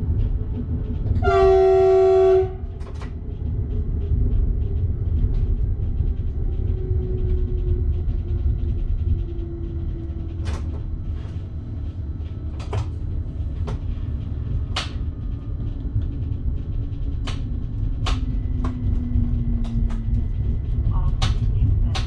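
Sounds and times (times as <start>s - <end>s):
train rumbling: 0.0s - 22.0s
sharp clicks and knocks: 12.5s - 13.0s, 14.7s - 20.2s, 21.0s - 22.0s.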